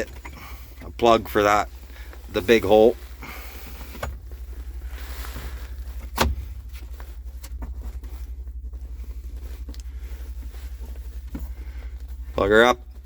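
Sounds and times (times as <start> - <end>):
engine idling: 0.0 - 13.0
light clicks of parts handled: 3.6 - 12.2.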